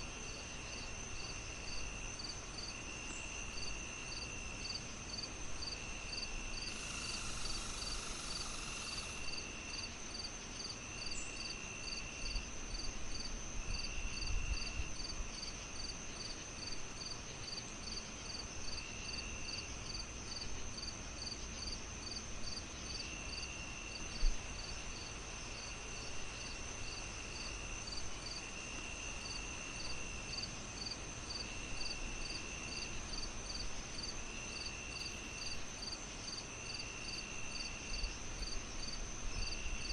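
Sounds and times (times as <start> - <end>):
crickets chirping: 0.0 - 39.9
lower insect trill: 0.2 - 39.9
high insect trill: 0.7 - 21.7, 26.4 - 39.9
fireplace hiss and crackle: 23.5 - 39.9.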